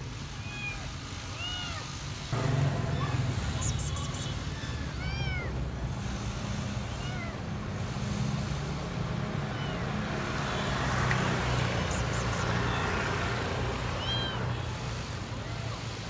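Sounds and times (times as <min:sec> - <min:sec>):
kitten mewing: 0:02.8 - 0:08.2, 0:09.4 - 0:10.9, 0:11.5 - 0:16.0.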